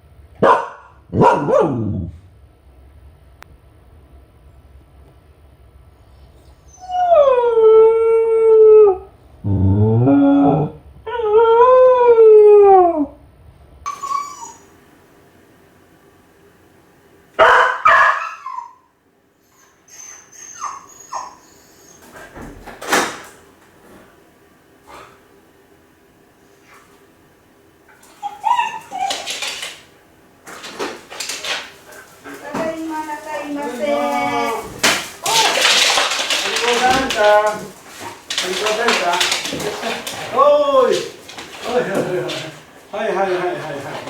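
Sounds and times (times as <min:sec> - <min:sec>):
dog whining: 0:06.3 - 0:13.1, 0:13.9 - 0:14.8, 0:18.0 - 0:22.3, 0:27.9 - 0:29.9, 0:30.7 - 0:41.2
dog howling: 0:06.7 - 0:13.2, 0:13.9 - 0:14.7, 0:28.0 - 0:29.9, 0:30.7 - 0:44.0.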